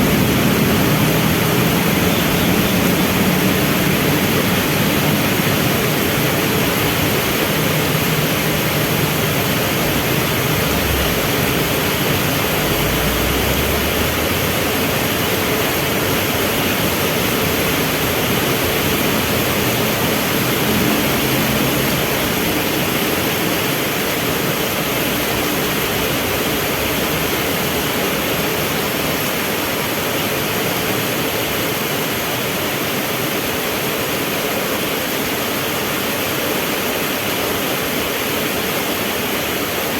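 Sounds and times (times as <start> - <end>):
vehicle engines humming: 0.0 - 29.6
heavy rain falling: 0.0 - 39.9.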